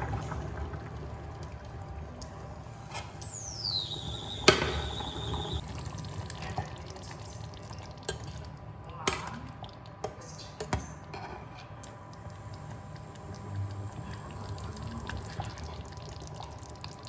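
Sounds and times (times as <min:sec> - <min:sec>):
high whistle-like tone: 0:02.8 - 0:05.6.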